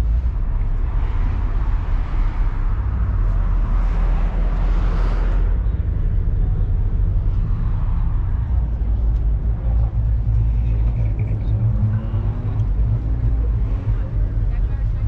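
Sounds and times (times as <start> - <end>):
car engine rumbling: 0.0 - 15.0.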